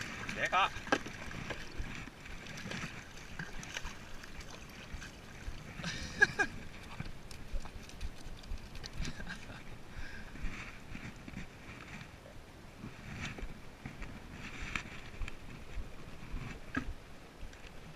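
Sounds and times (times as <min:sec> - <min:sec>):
water lapping: 0:00.0 - 0:11.9
kayak handling knocks and clicks: 0:00.3 - 0:03.5.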